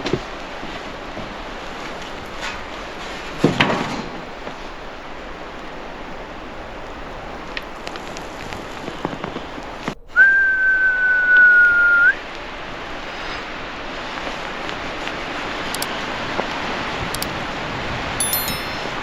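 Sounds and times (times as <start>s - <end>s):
background hiss: 0.0s - 17.2s
high whistle: 10.0s - 12.2s.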